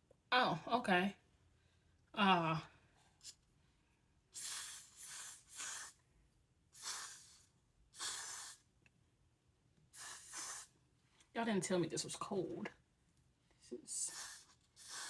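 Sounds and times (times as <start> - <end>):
aerosol hairspray hissing: 4.4 - 6.0, 6.8 - 7.4, 8.0 - 8.6, 10.0 - 10.7, 14.0 - 15.0.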